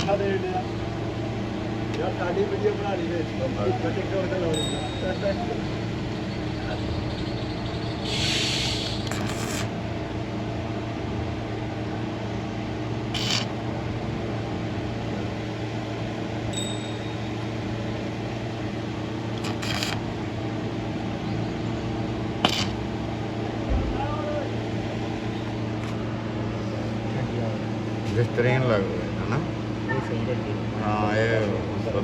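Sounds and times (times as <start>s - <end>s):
short hisses: 8.0s - 9.7s.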